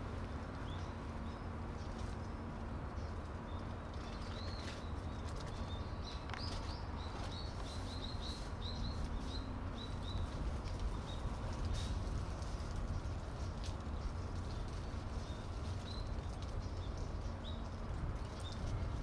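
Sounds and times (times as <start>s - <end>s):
low outdoor rumble: 0.0s - 19.0s
small bird chirping: 3.0s - 12.0s.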